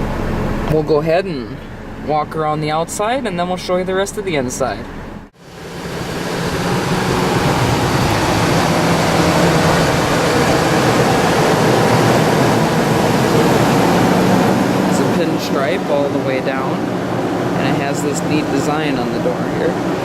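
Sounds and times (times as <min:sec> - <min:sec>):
steady low hum: 0:00.0 - 0:20.0
wind rushing over microphone: 0:05.4 - 0:20.0.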